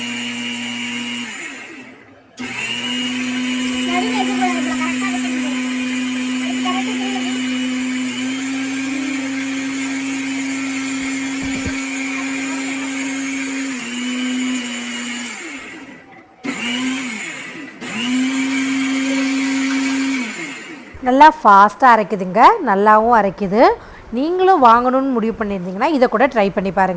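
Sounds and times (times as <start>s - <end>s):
mixer grinder motor whining: 0.0s - 21.2s.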